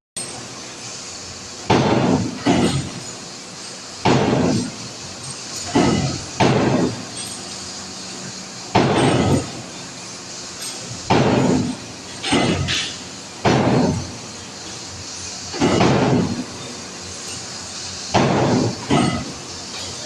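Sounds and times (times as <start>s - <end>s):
heavy hammer blows on steel: 15.5s - 16.6s, 18.1s - 20.0s.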